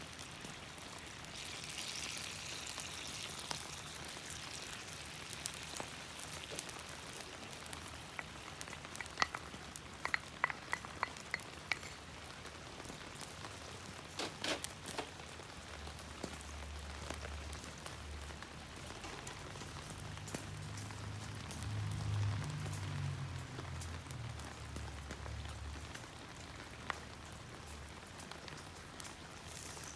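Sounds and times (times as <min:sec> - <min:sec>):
food sizzling in a pan: 0:00.0 - 0:13.8, 0:29.0 - 0:29.9
light metallic clinks: 0:08.1 - 0:12.1.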